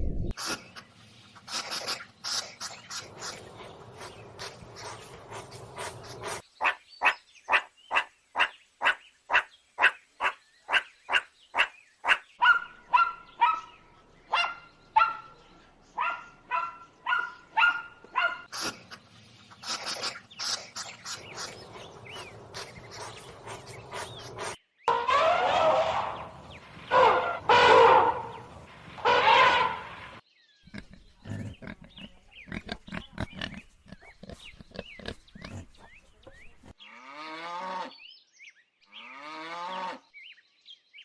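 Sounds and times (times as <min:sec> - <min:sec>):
dog barking: 0:12.1 - 0:15.3, 0:16.0 - 0:18.5.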